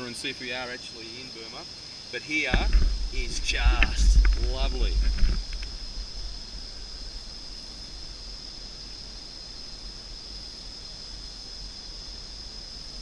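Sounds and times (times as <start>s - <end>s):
high-pitched insect drone: 0.0s - 13.0s
faint low rumble: 2.6s - 8.4s.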